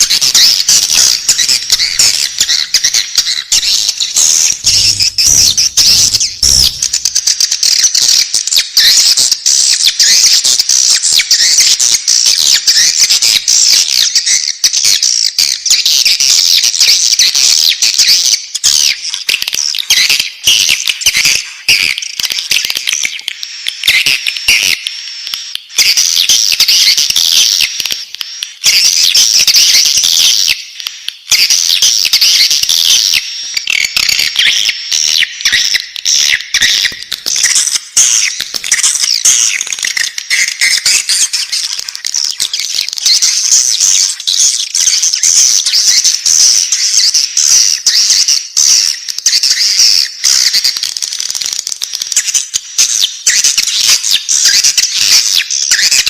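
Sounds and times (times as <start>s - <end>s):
bird chicks twittering: 0.0s - 9.2s, 31.6s - 50.8s.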